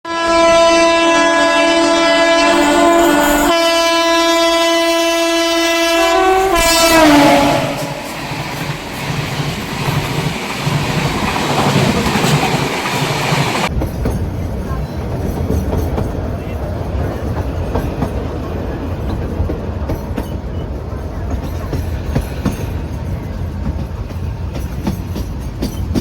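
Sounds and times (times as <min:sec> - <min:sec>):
train horn blasts: 0:00.1 - 0:08.6
train wagons clattering on rails: 0:06.3 - 0:26.0.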